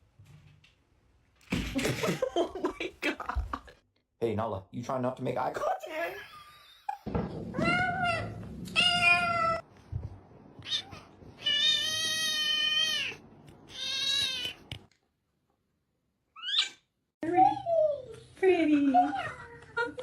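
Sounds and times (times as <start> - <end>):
cat meowing: 7.6 - 9.6, 10.6 - 14.7.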